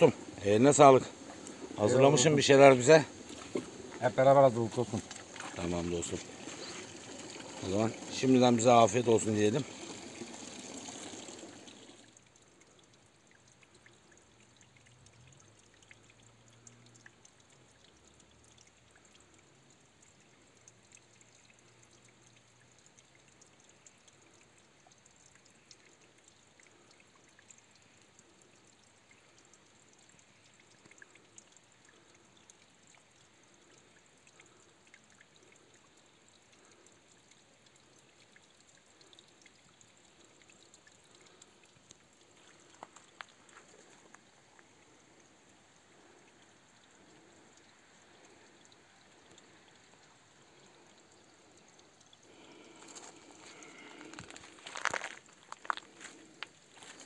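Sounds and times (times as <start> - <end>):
trickle of running water: 0.0 - 57.0
small ticks: 11.9 - 57.0.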